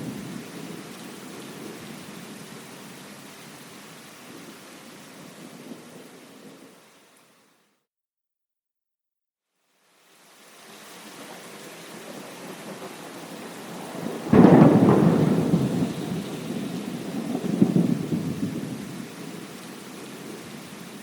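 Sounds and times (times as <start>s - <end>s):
rain hiss: 0.0s - 7.8s, 9.6s - 21.0s
rumbling thunder: 12.1s - 19.6s
loud thunderclap: 12.6s - 19.1s.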